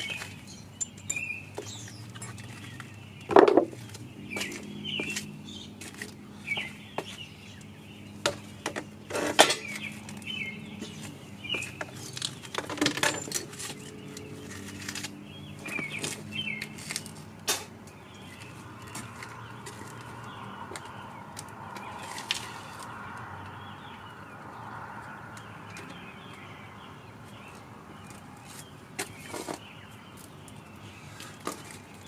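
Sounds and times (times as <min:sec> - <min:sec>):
metal parts and tools clinking: 0:00.0 - 0:03.6, 0:09.1 - 0:09.8, 0:12.1 - 0:15.1.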